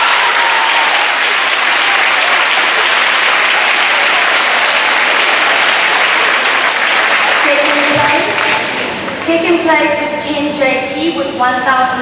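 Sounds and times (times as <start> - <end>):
audience applause: 0.0 - 9.4.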